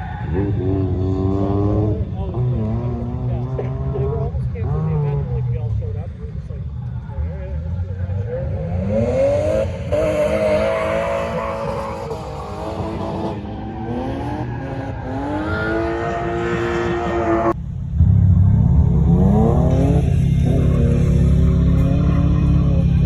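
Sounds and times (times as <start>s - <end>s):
car engine revving: 0.0s - 23.0s
deep steady drone: 15.0s - 23.0s.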